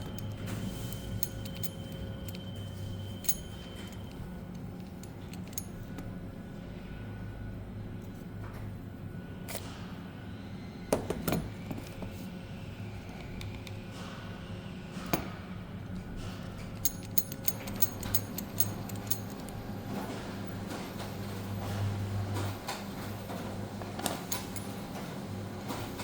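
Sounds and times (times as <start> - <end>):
steady low hum: 0.0 - 26.0
small parts clicking: 0.1 - 2.5, 3.2 - 5.8, 16.8 - 19.6.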